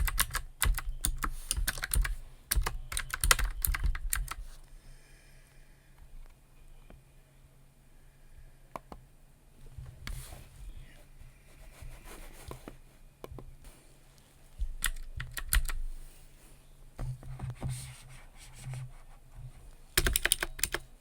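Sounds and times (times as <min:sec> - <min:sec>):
typing on a computer keyboard: 0:00.0 - 0:04.4, 0:14.8 - 0:15.8, 0:20.0 - 0:20.9.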